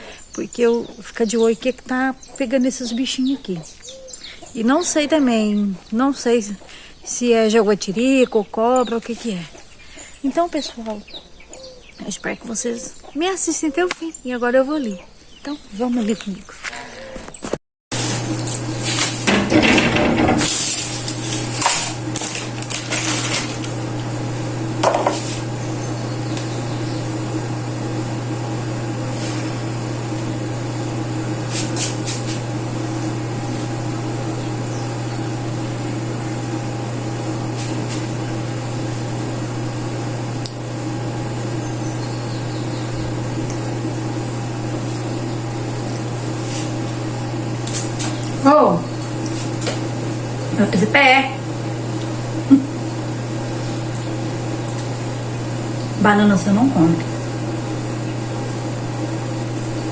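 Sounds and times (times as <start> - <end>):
steady machine hum: 17.9 - 59.9
kitchen items clattering: 18.0 - 23.8.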